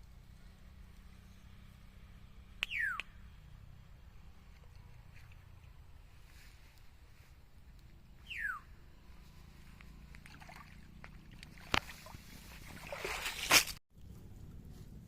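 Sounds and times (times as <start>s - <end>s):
water sloshing and splashing: 10.0s - 13.8s.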